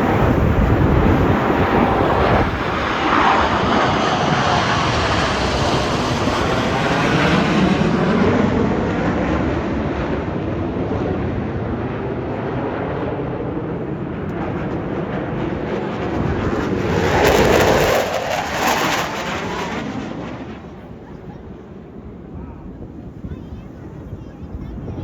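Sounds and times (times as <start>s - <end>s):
jet aircraft flying past: 0.0s - 24.9s.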